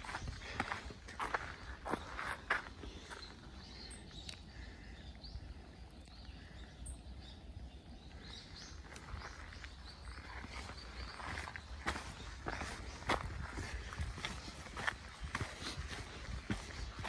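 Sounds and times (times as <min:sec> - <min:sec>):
faint bird chirps: 0:00.0 - 0:17.0
wind rumble on microphone: 0:11.8 - 0:17.0.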